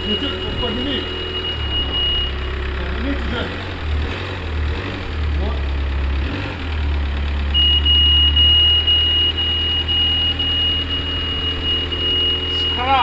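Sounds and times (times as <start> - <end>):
high-pitched electronic warning tone: 0.0 - 3.8, 7.6 - 13.0
low engine-like hum: 0.0 - 13.0.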